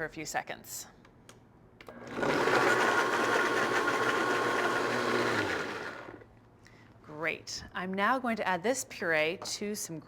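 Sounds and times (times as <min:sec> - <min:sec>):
blender running: 0:01.9 - 0:06.2.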